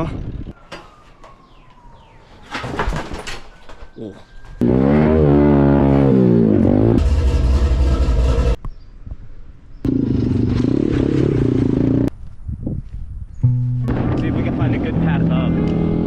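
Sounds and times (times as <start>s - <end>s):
dirt bike engine revving: 4.6s - 8.6s, 13.8s - 16.0s.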